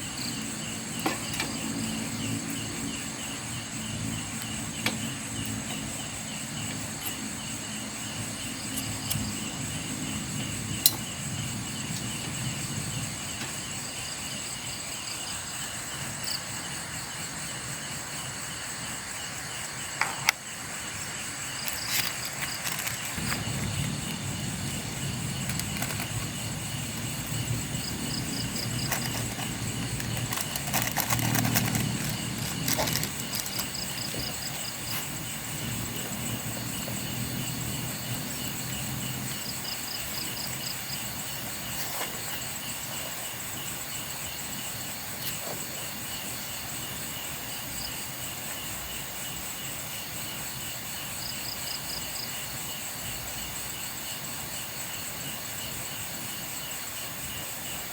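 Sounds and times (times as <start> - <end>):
crickets chirping: 0.0 - 57.9
rustling and handling noise: 21.6 - 36.4.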